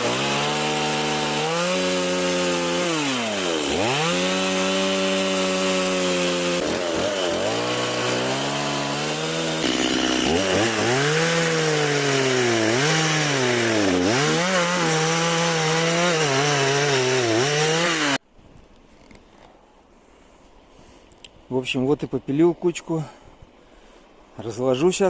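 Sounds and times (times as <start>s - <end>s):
chainsaw cutting wood: 0.0s - 18.2s.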